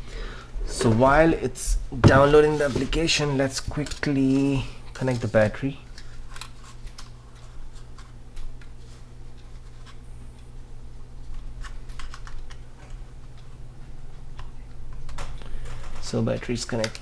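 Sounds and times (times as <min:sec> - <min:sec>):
plastic clicks and handling: 0:14.4 - 0:17.0.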